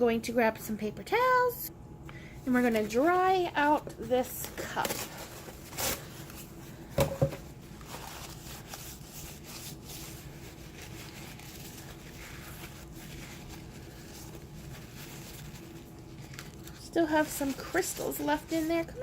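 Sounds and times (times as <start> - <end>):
paper towel wiping plastic cup: 2.5 - 19.0
cup knocks: 7.0 - 7.4.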